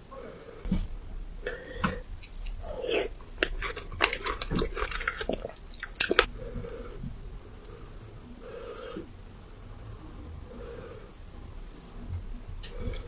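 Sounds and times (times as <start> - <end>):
person chewing crunchy food: 1.4 - 7.1.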